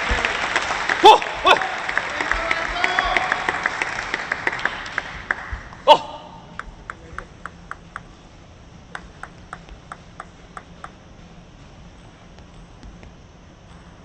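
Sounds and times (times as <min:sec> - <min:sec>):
table tennis ball bouncing: 0:06.4 - 0:08.2, 0:08.9 - 0:11.0, 0:11.9 - 0:14.0.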